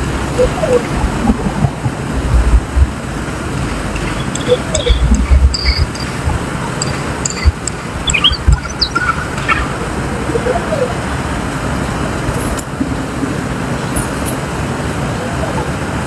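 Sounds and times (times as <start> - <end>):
low thumps: 0.0 - 11.1
bird chirps: 3.6 - 11.2.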